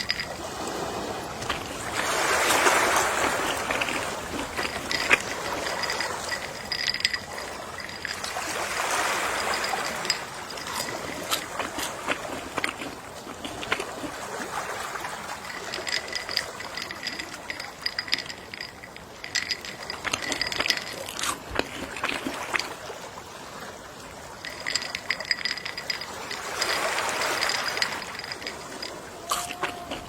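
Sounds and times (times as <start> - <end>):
sea waves washing on shore: 0.0 - 30.0
faint high ringing: 1.5 - 11.9, 15.4 - 21.1, 24.4 - 30.0.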